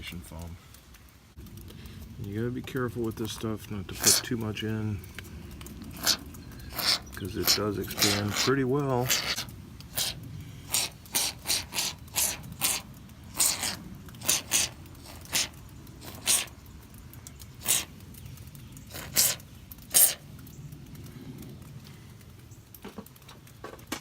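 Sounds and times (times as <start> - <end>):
foam can spraying hissing spurts: 3.2 - 20.5.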